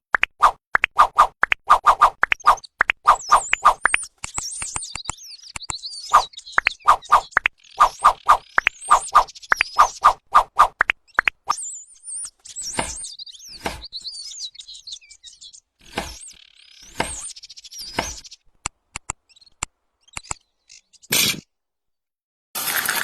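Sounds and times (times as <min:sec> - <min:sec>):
sharp clicks: 0:00.1 - 0:11.6, 0:15.9 - 0:20.4
birds chirping whistles: 0:01.8 - 0:18.5, 0:19.1 - 0:21.3.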